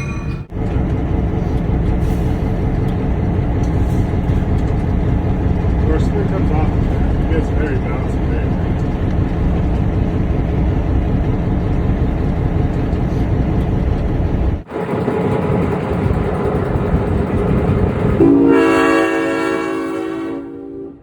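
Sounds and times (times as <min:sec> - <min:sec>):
diesel locomotive engine running: 0:00.0 - 0:21.0
locomotive air horn chord: 0:18.2 - 0:21.0.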